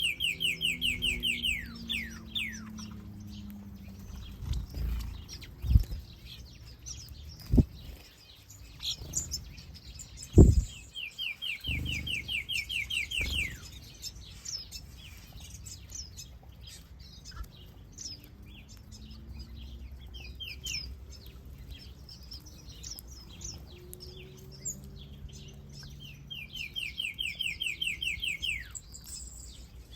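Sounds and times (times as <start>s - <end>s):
fast bird trill: 0.0s - 3.0s, 10.2s - 13.8s
finches chirping and singing: 0.0s - 29.9s.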